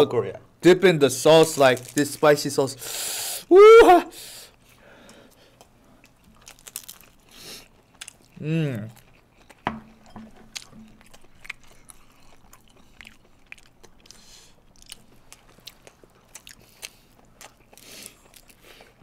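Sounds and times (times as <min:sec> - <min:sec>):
chewing crispy fried chicken: 0:05.6 - 0:19.0.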